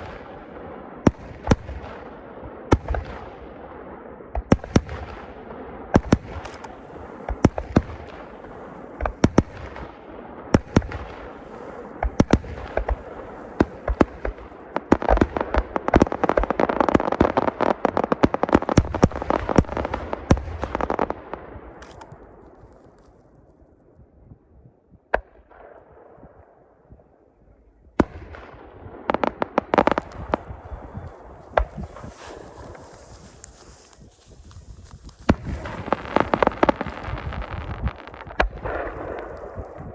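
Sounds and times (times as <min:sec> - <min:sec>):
fireworks crackling: 0:06.4 - 0:07.2, 0:21.8 - 0:22.1, 0:29.4 - 0:39.9
fireworks bangs: 0:35.2 - 0:39.9.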